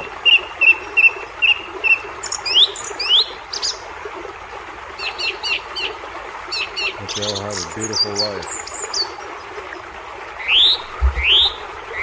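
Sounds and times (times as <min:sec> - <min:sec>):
bird chirping: 0:06.5 - 0:09.2
rising whistled bird notes: 0:10.5 - 0:12.0.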